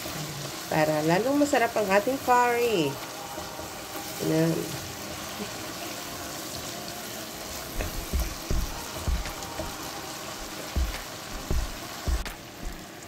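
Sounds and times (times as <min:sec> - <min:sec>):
masala sizzling in oil: 0:00.0 - 0:13.0
spatula knocking against pan: 0:07.8 - 0:09.8, 0:10.8 - 0:12.8.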